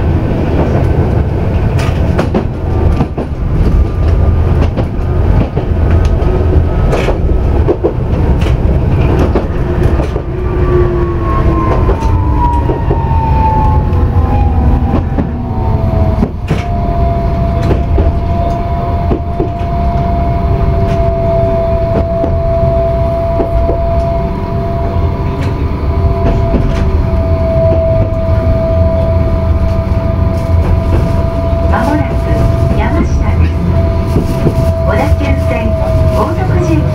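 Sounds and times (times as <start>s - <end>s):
light-rail car rumble: 0.0s - 36.9s
train motor whine: 8.2s - 36.9s.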